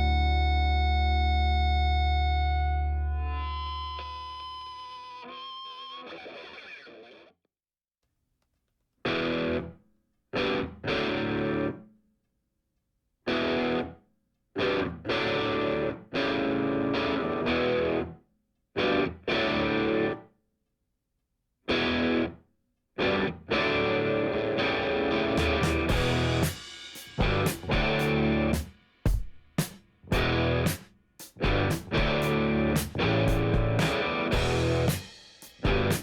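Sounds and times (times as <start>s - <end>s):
distorted electric guitar chords: 0.0s - 6.2s, 23.0s - 28.6s, 30.1s - 30.8s, 31.4s - 36.0s.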